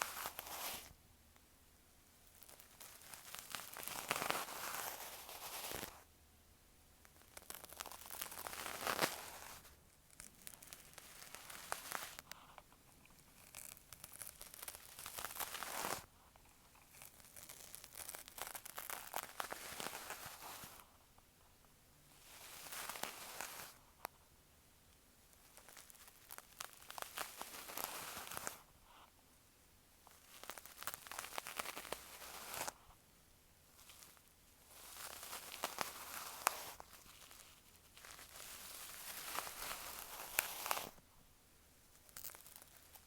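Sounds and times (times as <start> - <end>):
crackly rustling on microphone: 2.2 - 6.1, 7.1 - 21.0, 25.3 - 29.1, 30.0 - 33.0, 33.7 - 41.0.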